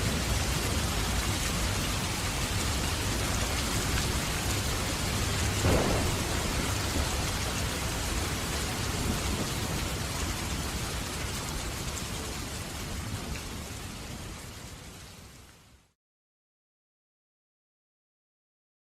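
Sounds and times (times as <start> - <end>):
low rumble of thunder: 0.0 - 12.1
heavy rain: 0.0 - 16.0.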